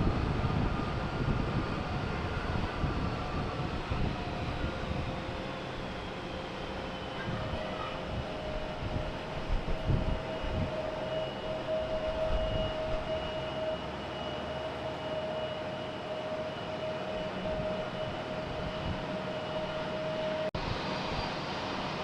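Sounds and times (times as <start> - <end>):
jet engines whining: 0.0 - 22.0.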